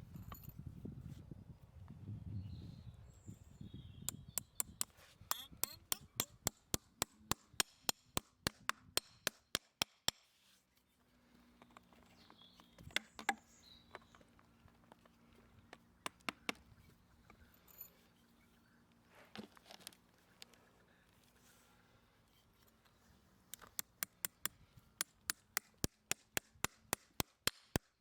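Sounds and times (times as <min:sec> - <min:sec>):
sharp evenly spaced taps: 0:04.1 - 0:10.2, 0:23.6 - 0:28.0.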